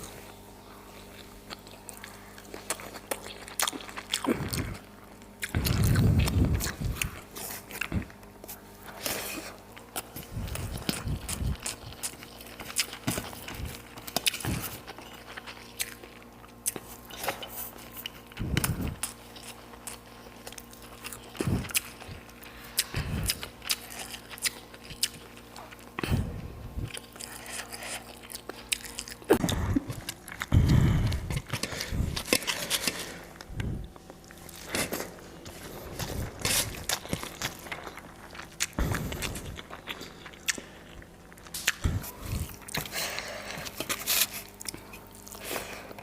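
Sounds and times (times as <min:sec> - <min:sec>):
person chewing food: 0:00.0 - 0:46.0.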